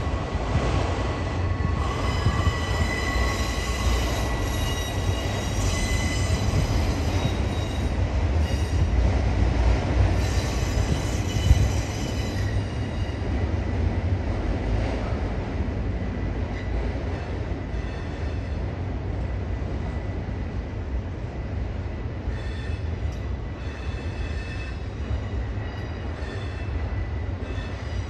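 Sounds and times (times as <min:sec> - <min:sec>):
train wheels rumbling on rail: 0:00.0 - 0:28.0
high-pitched wheel squeal: 0:01.8 - 0:08.6.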